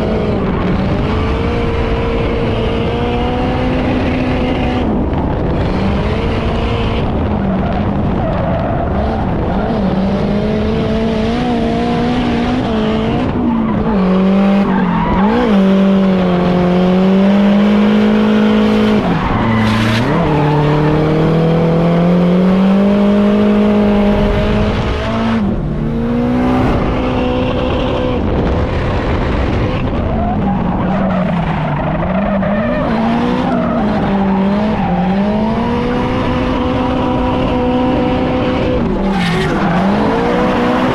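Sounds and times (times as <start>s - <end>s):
car engine revving hard: 0.0s - 40.9s
tyres skidding: 12.4s - 40.9s.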